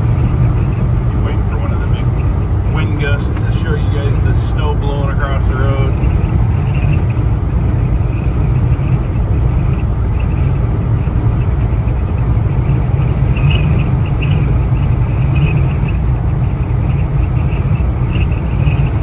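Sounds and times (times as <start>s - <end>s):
road and wind noise rumble: 0.0s - 19.0s.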